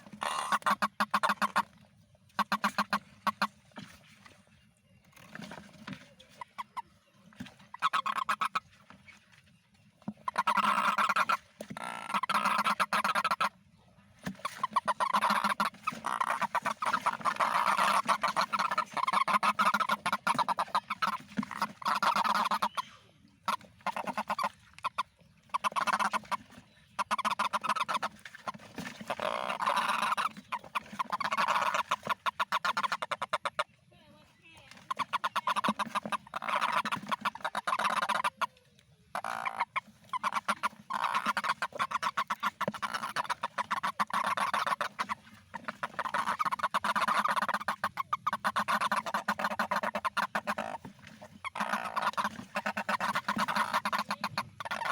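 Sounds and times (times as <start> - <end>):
toads calling in pulsed trills: 7.8 - 8.6, 10.2 - 13.5, 14.4 - 26.3, 34.9 - 38.5, 51.4 - 54.9.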